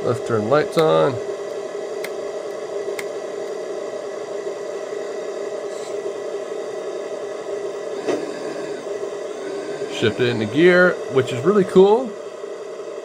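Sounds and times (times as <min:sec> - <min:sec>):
simulated diesel engine idle hum: 0:00.0 - 0:13.0.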